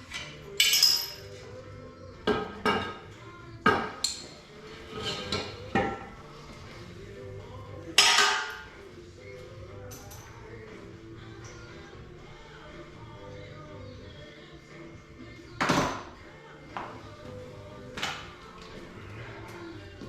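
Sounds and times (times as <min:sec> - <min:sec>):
metal tools clanking: 0:00.0 - 0:01.4.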